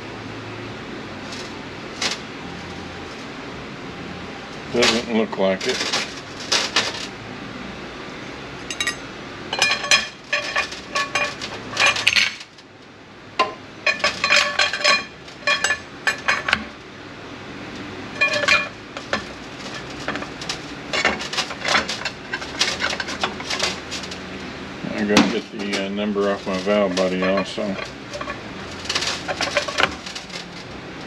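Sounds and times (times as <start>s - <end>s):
steel parts clinking: 4.6s - 7.2s, 8.6s - 12.6s, 13.4s - 16.8s, 18.1s - 24.3s, 25.0s - 30.8s.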